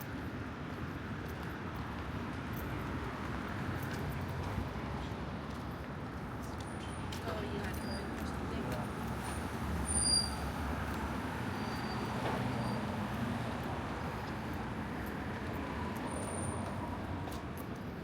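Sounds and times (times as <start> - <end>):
vehicle traffic: 5.7 - 18.0.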